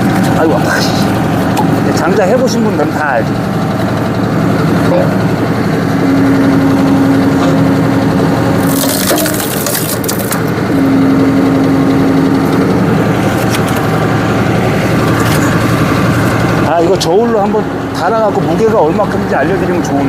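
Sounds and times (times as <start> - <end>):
hydraulic whine: 0.0 - 20.0
tractor engine running: 0.0 - 20.0
wood cracking and splintering: 8.6 - 10.5.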